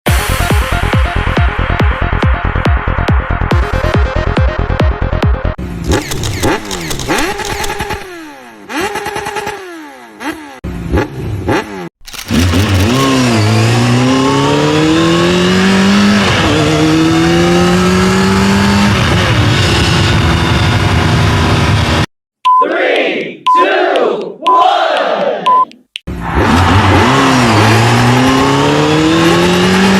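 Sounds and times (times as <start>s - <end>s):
motorcycle engine revving: 5.6s - 22.1s, 26.1s - 29.9s.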